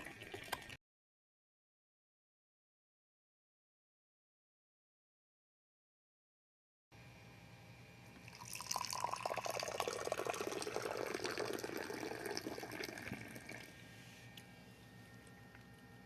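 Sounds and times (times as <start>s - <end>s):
tea pouring into a glass: 0.0s - 0.8s, 8.2s - 13.7s.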